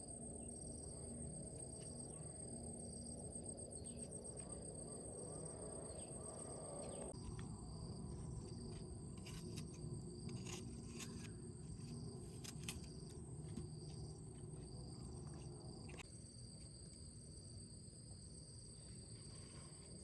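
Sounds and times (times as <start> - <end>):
insects chirring: 0.0 - 20.0
low outdoor rumble: 2.8 - 16.0.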